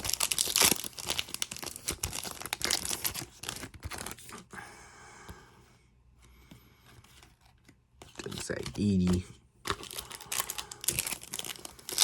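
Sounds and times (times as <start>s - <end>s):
card pack wrappers tearing: 0.0s - 4.4s, 8.2s - 12.0s.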